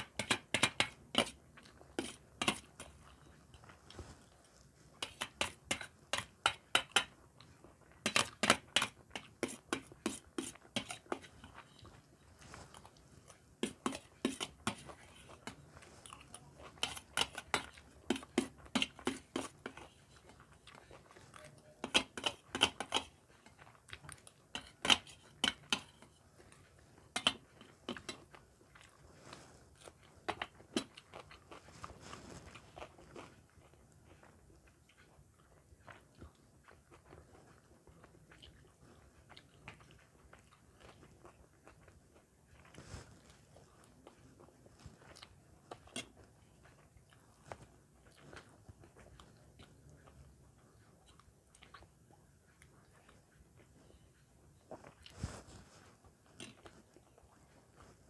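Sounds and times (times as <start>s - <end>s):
person chewing food: 0.0s - 58.0s.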